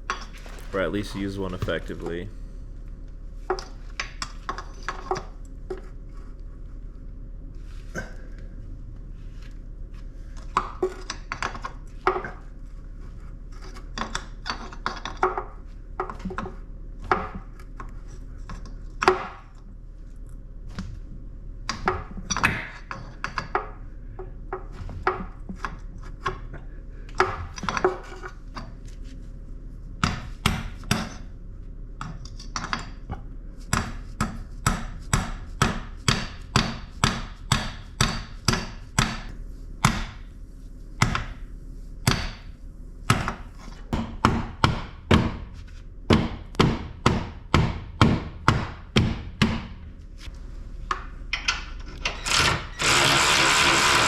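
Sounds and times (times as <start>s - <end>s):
metal tools knocking and scraping: 0.1s - 2.1s.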